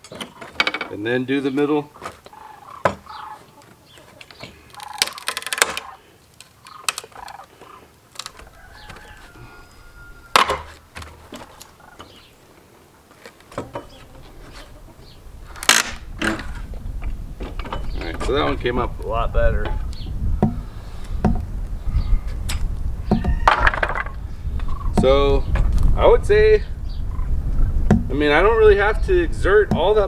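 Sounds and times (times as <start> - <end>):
boards cracking and squeaking: 0.0 - 30.0
chickens calling: 0.0 - 30.0.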